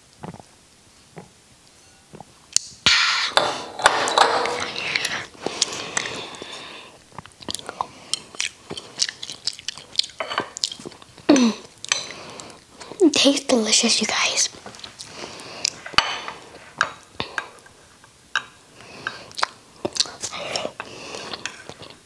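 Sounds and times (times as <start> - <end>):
chewing and wet mouth sounds: 4.6 - 13.0, 16.4 - 22.0.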